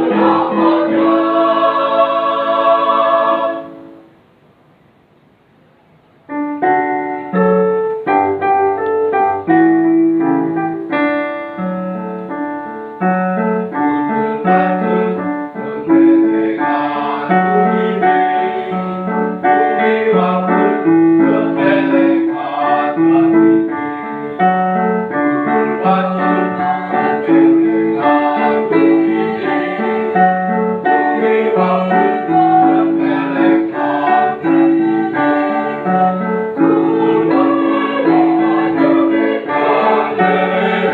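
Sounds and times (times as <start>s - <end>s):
choir singing: 0.0s - 4.1s, 14.0s - 24.5s, 25.4s - 40.9s
piano chords and melody: 0.0s - 4.2s, 6.2s - 40.9s.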